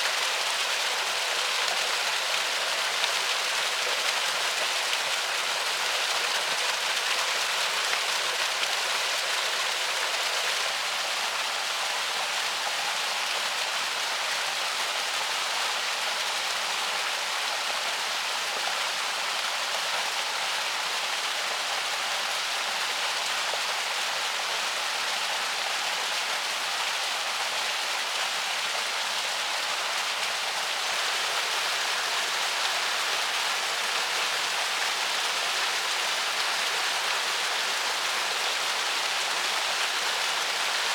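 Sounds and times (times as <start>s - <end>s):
river flowing: 22.9s - 40.9s.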